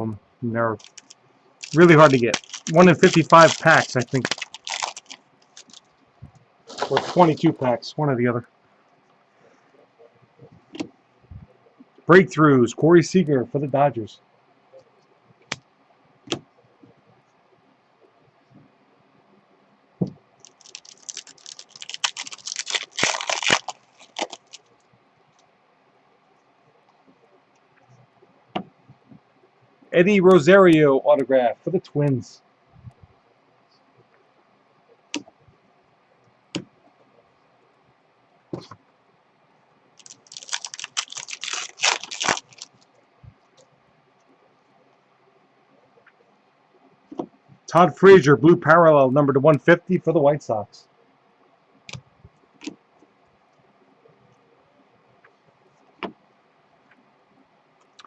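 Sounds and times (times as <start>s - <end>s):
foil wrapper tearing and crinkling: 0.8s - 5.8s, 6.7s - 7.6s, 20.4s - 24.7s, 40.0s - 42.8s
packaging crackling clicks: 0.8s - 5.9s, 6.7s - 7.6s, 20.4s - 24.7s, 40.0s - 43.0s.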